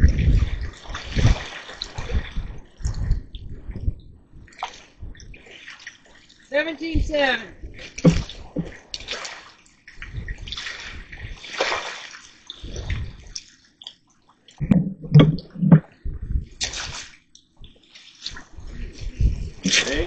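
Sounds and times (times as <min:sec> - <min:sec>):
water sloshing and splashing: 0:00.0 - 0:20.0
dull knocks: 0:08.0 - 0:08.7, 0:14.6 - 0:15.9.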